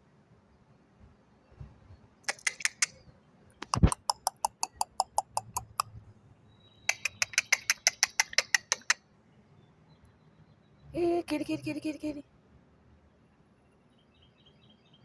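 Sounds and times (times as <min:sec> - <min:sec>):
person making kissing sounds: 0:02.3 - 0:03.0, 0:03.6 - 0:05.9, 0:06.9 - 0:09.0.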